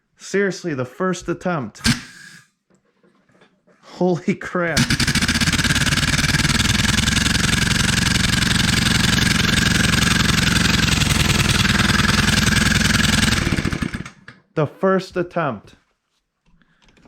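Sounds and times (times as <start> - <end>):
air-powered engine running fast: 4.8 - 14.1.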